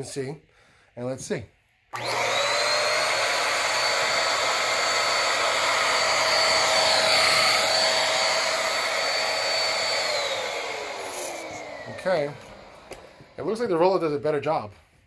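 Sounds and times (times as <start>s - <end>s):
vacuum cleaner whining: 1.9s - 14.0s.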